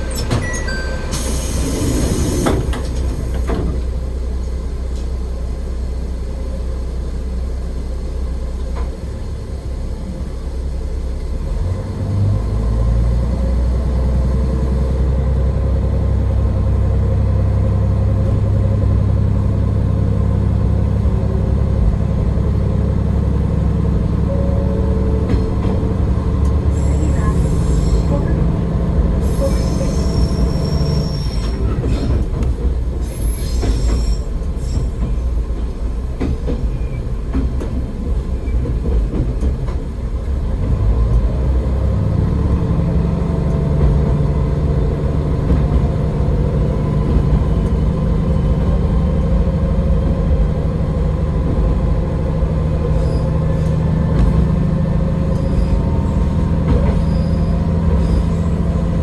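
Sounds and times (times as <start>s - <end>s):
high wheel squeal: 0.0s - 2.7s, 26.6s - 28.5s, 29.2s - 32.1s, 33.0s - 35.0s, 52.9s - 53.8s, 55.2s - 58.9s
diesel engine drone: 0.0s - 32.9s, 40.0s - 59.0s
wheels on rail: 17.8s - 59.0s.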